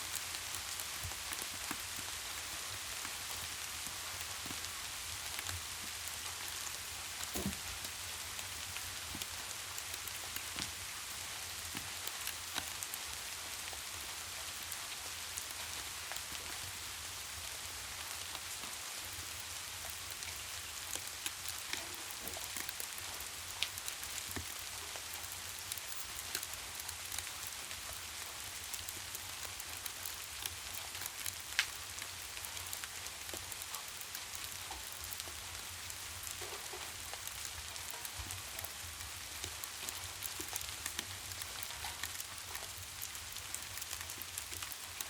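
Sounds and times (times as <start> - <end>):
sharp ticks and pops: 19.3 - 45.0.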